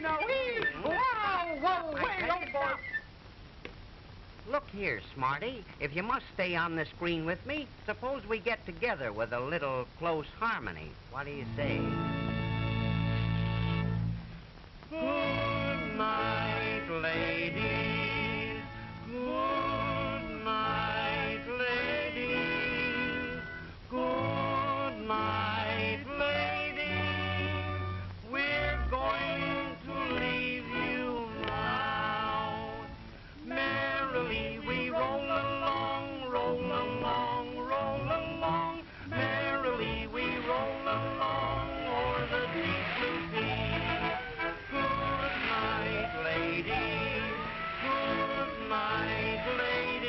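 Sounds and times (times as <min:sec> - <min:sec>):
voices singing with vibrato: 0:14.9 - 0:50.0.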